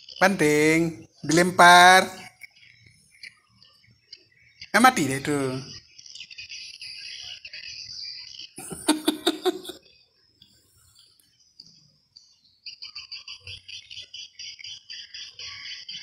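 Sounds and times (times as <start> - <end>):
birds twittering: 0.0 - 10.2, 11.0 - 16.0
harsh bird calls: 4.2 - 9.8.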